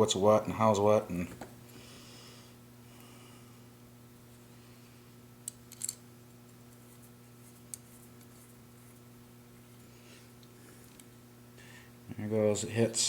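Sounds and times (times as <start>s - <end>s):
steady low hum: 0.0s - 13.0s
small metal parts clicking: 5.4s - 6.0s.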